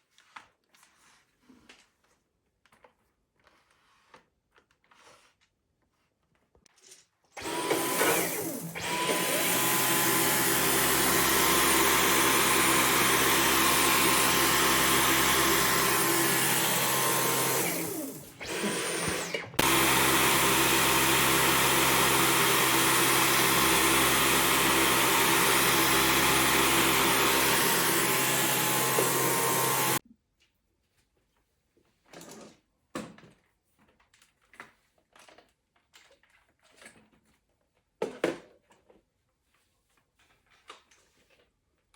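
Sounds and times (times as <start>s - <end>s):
stick vacuum motor whine: 7.4s - 30.0s.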